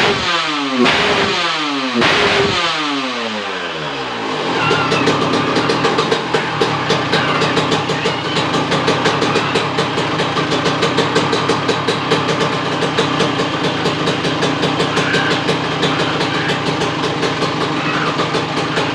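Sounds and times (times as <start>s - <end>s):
two-stroke motorcycle engine idling: 0.0s - 18.9s.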